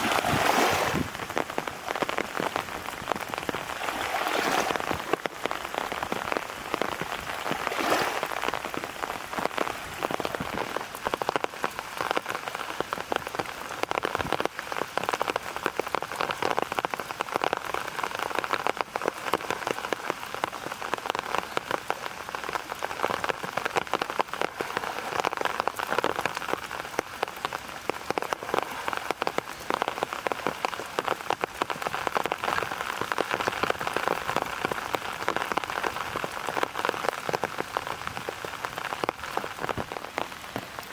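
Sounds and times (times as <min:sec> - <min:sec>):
heavy rain pattering: 0:00.0 - 0:40.9.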